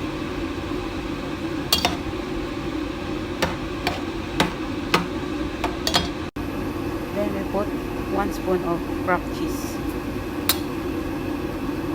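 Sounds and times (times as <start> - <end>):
steady hum: 0.0 - 6.4
spoon stirring sauce in a pan: 1.7 - 6.2
spoon knocking against pan: 1.8 - 2.3, 3.3 - 6.3.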